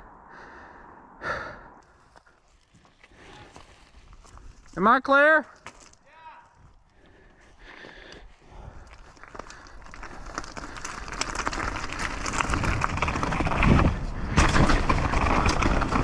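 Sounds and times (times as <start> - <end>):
bike tyres on dirt trail: 0.3 - 16.0
heavy thumps of bike: 9.3 - 16.0.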